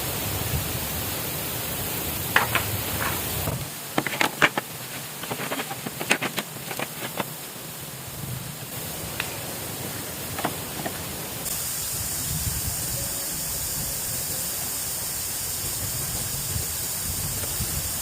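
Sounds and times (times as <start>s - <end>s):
rushing water: 0.0s - 12.6s
sharp knocks and clicks: 2.4s - 3.3s.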